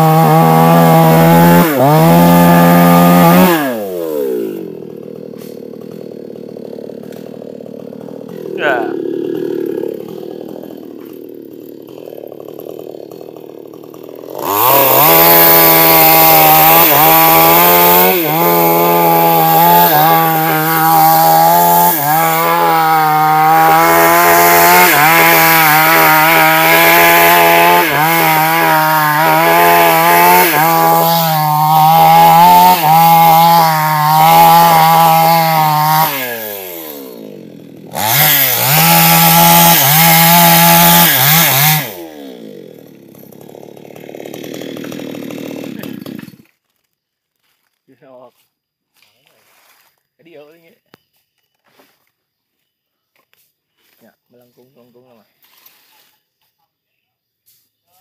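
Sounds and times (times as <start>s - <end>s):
chainsaw cutting wood: 0.0s - 47.6s.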